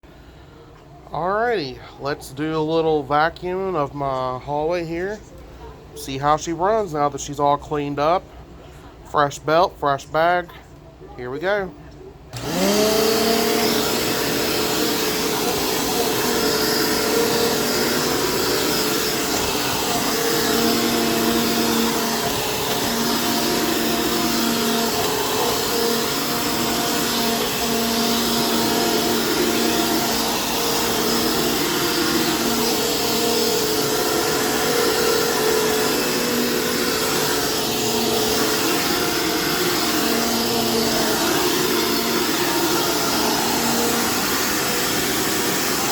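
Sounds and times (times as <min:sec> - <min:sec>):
vacuum cleaner motor running: 0:12.3 - 0:45.9.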